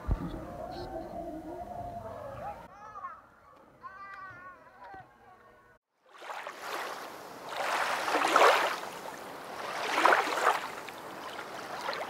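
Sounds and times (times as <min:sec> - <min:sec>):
rushing water waves: 0:06.0 - 0:12.0.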